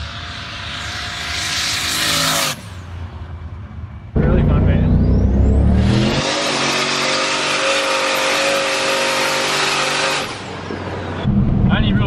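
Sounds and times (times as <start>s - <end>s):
car engine accelerating hard: 4.2s - 10.4s
loud rushing noise: 11.2s - 12.0s.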